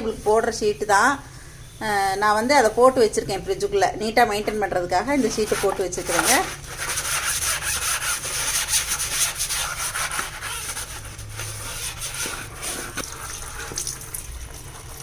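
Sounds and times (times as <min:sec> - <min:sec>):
scouring pad scrubbing: 0:05.1 - 0:15.0.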